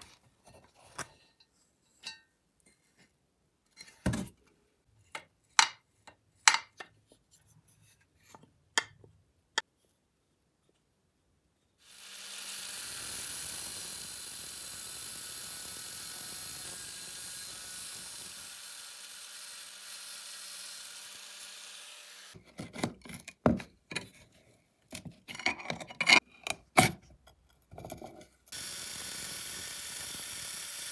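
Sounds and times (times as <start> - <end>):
steady sandblasting hiss: 11.9 - 22.4.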